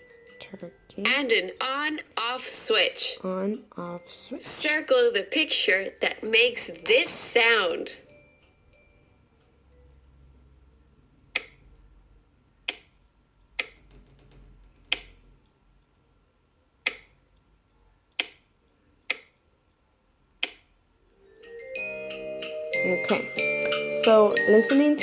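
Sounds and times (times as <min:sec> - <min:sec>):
switch clicking: 0:12.7 - 0:12.9, 0:14.9 - 0:15.2.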